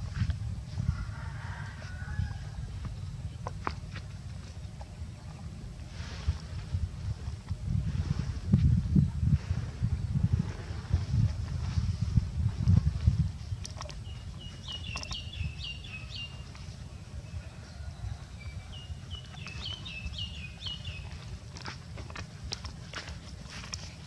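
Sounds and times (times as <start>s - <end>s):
low rumble: 0.0s - 24.0s
songbird chirping: 13.4s - 24.0s.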